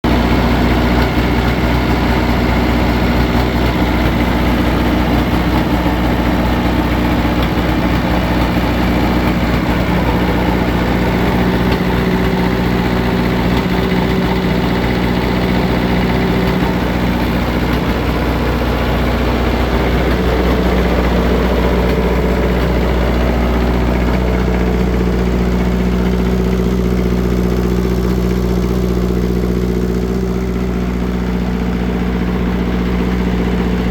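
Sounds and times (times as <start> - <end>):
engine idling with popping: 0.0 - 33.9.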